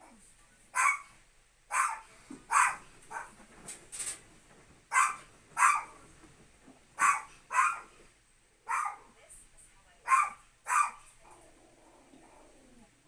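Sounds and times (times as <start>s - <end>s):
dog barking: 0.8s - 3.4s, 4.9s - 6.0s, 7.0s - 7.9s, 8.7s - 9.1s, 10.0s - 11.1s.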